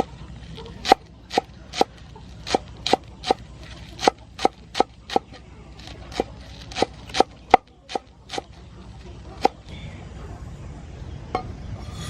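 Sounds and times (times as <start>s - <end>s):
knife chopping on cutting board: 0.8s - 3.4s, 4.0s - 8.4s.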